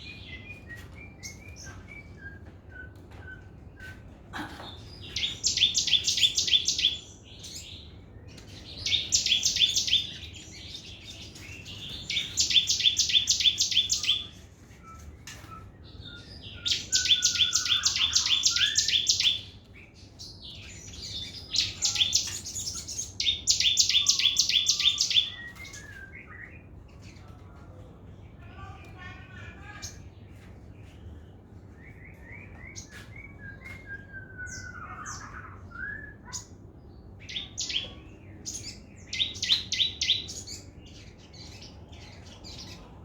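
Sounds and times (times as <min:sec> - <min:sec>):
songbird trilling: 0:05.1 - 0:07.6, 0:08.8 - 0:10.6, 0:11.9 - 0:14.4, 0:16.1 - 0:19.5, 0:20.5 - 0:26.0.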